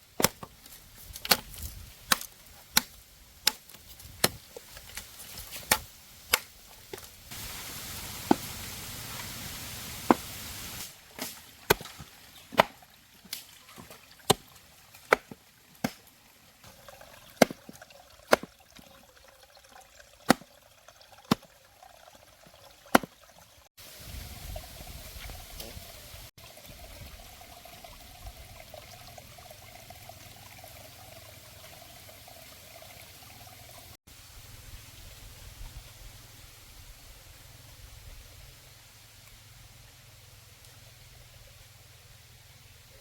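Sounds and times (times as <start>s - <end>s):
steady hiss: 7.2s - 11.4s.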